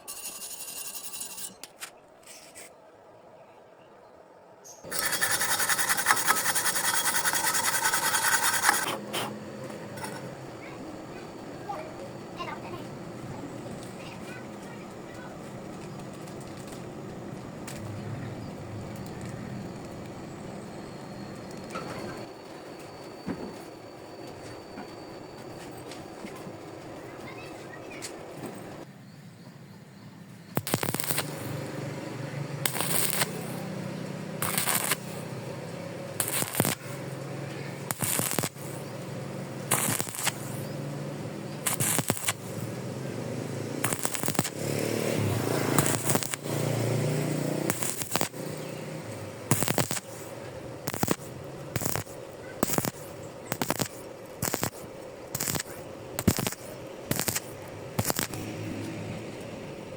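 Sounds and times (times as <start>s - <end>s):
welding arc crackle: 4.8s - 9.0s, 30.6s - 32.0s, 32.6s - 35.4s, 36.0s - 59.0s.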